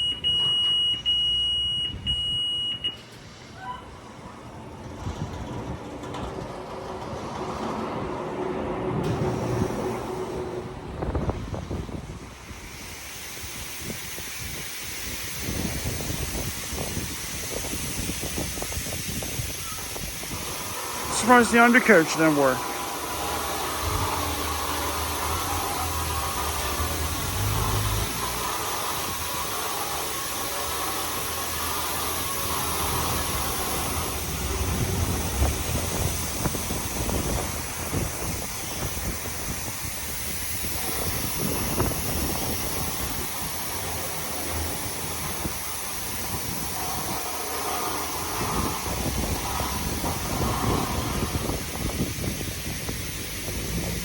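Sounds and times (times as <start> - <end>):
low mechanical rumble: 1.7 - 54.0
water spray hissing: 12.2 - 54.0.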